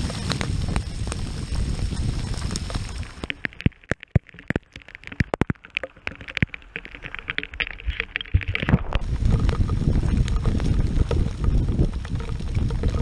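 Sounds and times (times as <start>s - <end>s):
low wind rush: 0.0s - 3.2s, 8.4s - 13.0s
raindrops tapping: 0.0s - 13.0s.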